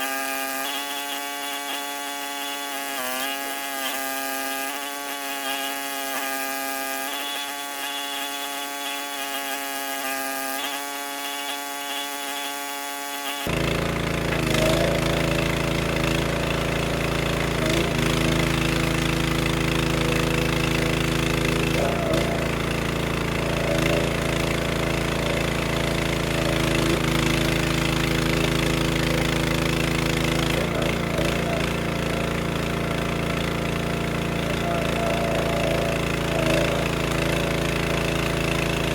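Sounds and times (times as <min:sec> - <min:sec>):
small petrol engine running: 0:00.0 - 0:38.9
whining sound: 0:34.0 - 0:38.9.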